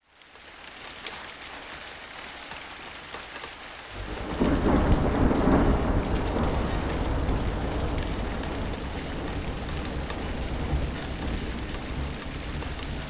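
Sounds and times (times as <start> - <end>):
steady rain hissing: 0.0 - 13.0
deep rumble of thunder: 4.0 - 13.0.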